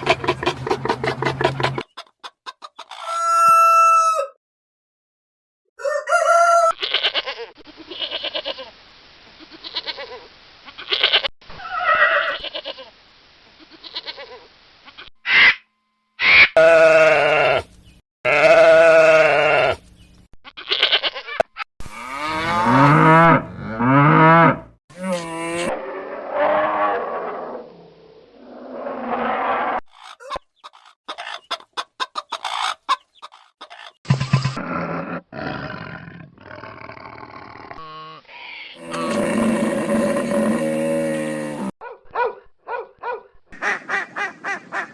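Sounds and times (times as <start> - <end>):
goats and sheep bleating: 6.8 - 8.7, 16.6 - 17.7, 18.3 - 19.8, 20.5 - 22.9.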